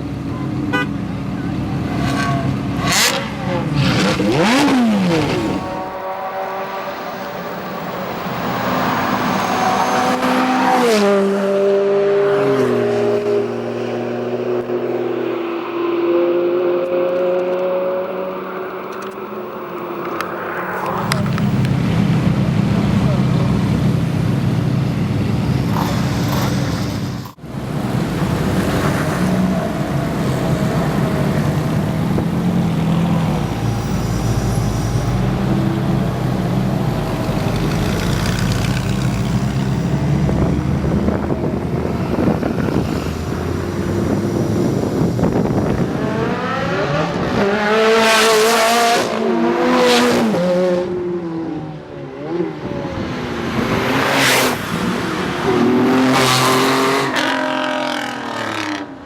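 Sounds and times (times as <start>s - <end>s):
sports car engine revving: 1.9s - 6.9s.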